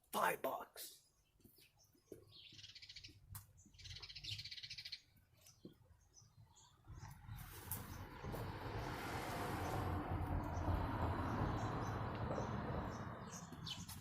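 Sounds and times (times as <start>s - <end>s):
bird trilled chirping: 2.2s - 7.2s.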